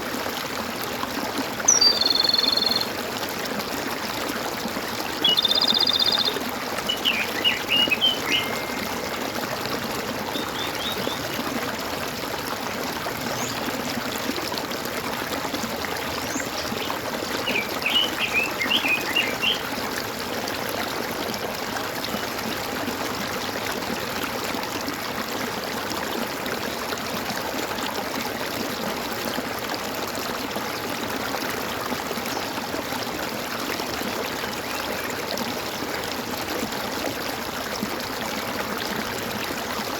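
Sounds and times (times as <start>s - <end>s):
water trickling and gurgling: 0.0s - 39.9s
small birds chirping: 1.7s - 2.9s, 5.1s - 9.3s, 10.2s - 11.4s, 16.2s - 19.6s.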